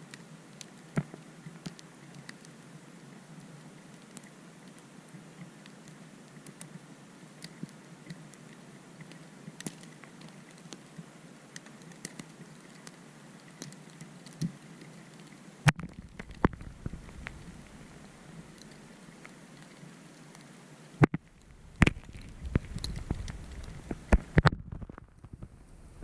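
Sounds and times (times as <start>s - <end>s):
steady hiss: 0.0s - 26.0s
snow and ice pattering: 21.1s - 25.6s.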